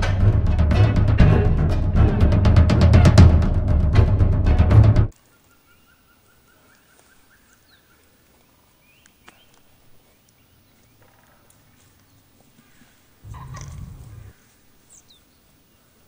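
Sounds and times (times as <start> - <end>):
distant birds calling: 5.1 - 16.0.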